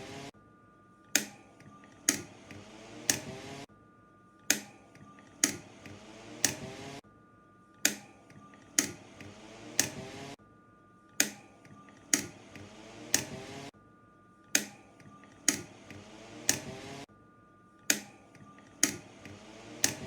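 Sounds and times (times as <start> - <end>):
fan motor humming: 0.0 - 0.3, 1.1 - 3.7, 4.5 - 7.0, 7.8 - 10.4, 11.2 - 13.7, 14.4 - 17.1, 17.8 - 20.0
fan control buttons clicking: 1.1 - 3.6, 4.5 - 7.0, 7.8 - 10.4, 11.2 - 13.7, 14.5 - 17.1, 17.9 - 20.0.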